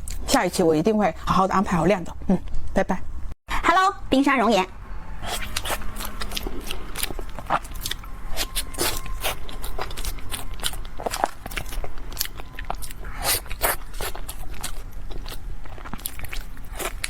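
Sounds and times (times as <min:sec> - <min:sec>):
chewing crunchy snack: 0:05.2 - 0:17.0.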